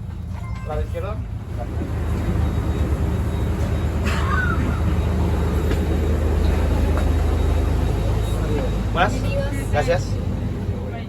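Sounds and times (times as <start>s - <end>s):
low droning hum: 0.0s - 11.0s.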